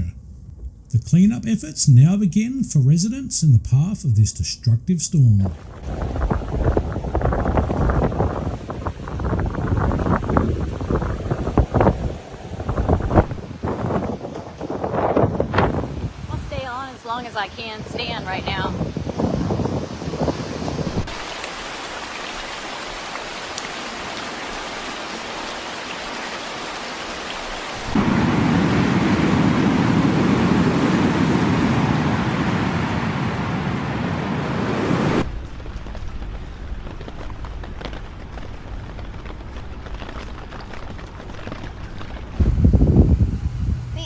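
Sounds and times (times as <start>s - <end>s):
storm rushing: 5.1s - 21.7s, 27.7s - 37.4s
heavy rain hissing: 20.9s - 35.3s.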